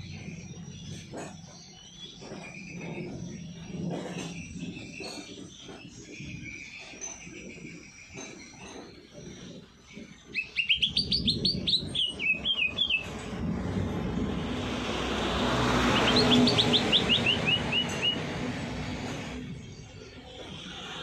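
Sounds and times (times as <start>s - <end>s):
songbird singing sharp chirps: 10.3s - 13.2s, 15.7s - 18.3s
rushing noise: 10.8s - 21.0s.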